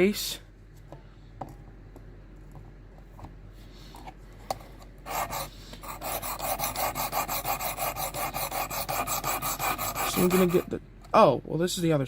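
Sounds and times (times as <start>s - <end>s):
sharpening stone rasping on knife: 5.1s - 10.7s.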